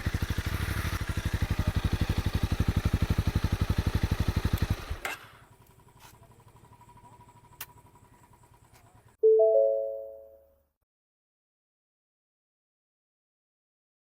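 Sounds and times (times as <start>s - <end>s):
engine shutting off with a knock: 0.0s - 9.2s
motorcycle engine idling: 0.0s - 9.2s.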